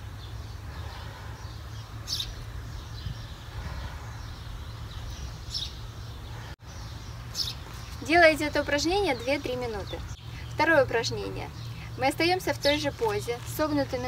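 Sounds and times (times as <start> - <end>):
steady low rumble: 0.0 - 7.8.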